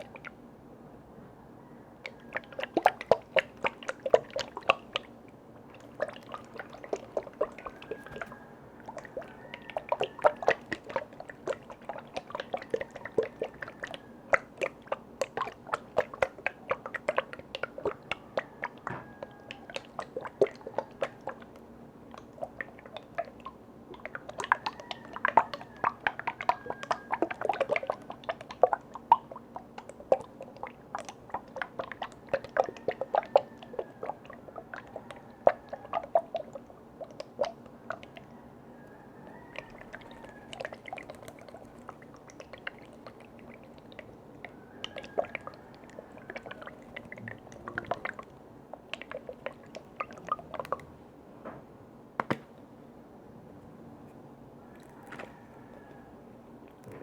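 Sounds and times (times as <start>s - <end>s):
liquid sounds: 0.0s - 0.4s, 2.0s - 51.1s, 54.6s - 57.0s
tapping and clicking on containers: 52.2s - 52.5s.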